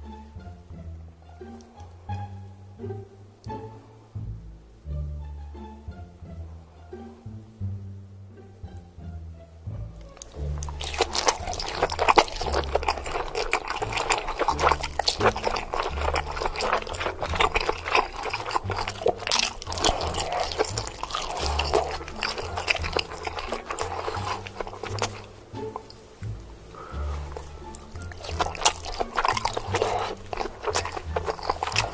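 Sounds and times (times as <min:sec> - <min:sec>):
background music with bass line: 0:00.0 - 0:31.9
crab shell cracking and chewing: 0:10.0 - 0:31.9.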